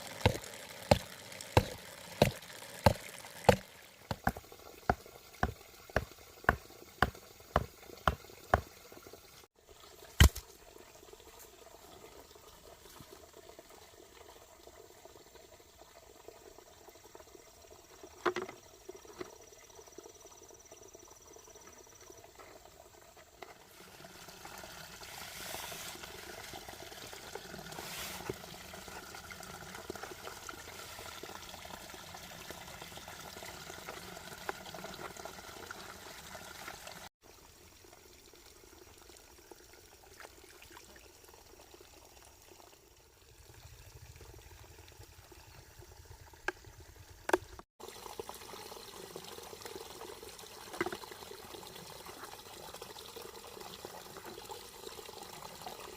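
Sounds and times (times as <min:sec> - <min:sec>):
water trickling and pouring: 0:00.0 - 0:55.9.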